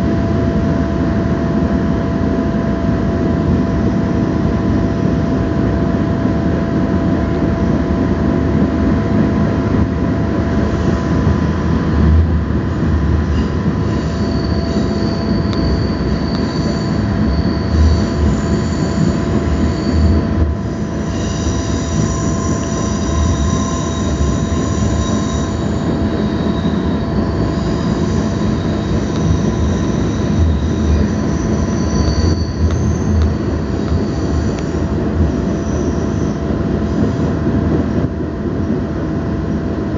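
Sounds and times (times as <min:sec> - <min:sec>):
train rumbling inside carriage: 0:00.0 - 0:39.9
high-pitched wheel squeal: 0:10.6 - 0:37.4.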